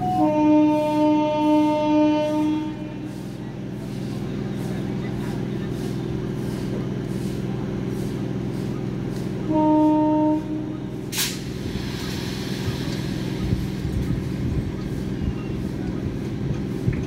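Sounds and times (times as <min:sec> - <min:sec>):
train horn: 0:00.0 - 0:03.2, 0:09.4 - 0:11.0
train electrical equipment humming: 0:00.0 - 0:17.0
sharp hiss of air: 0:11.1 - 0:15.2.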